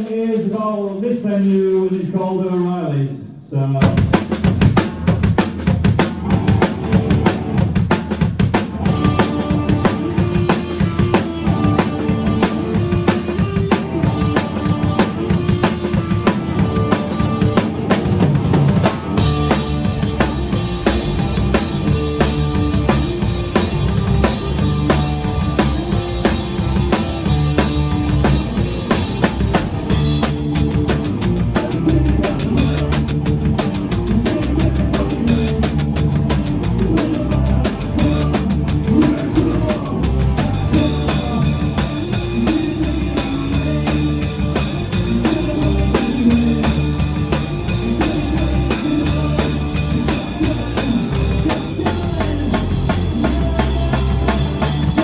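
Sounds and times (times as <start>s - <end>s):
live rock band playing: 3.8s - 55.0s
fast cymbal ticking: 19.1s - 52.4s.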